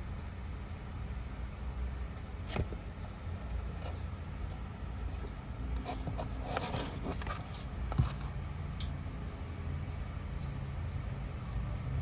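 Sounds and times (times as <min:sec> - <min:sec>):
steady low hum: 0:00.0 - 0:12.0
rubbing and scraping handling: 0:02.5 - 0:02.8, 0:05.0 - 0:08.4.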